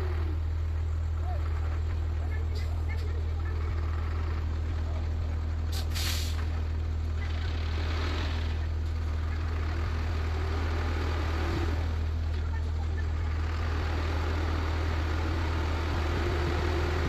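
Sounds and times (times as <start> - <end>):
heavy vehicle engine running: 0.0 - 17.0
air brake hiss: 5.7 - 6.4.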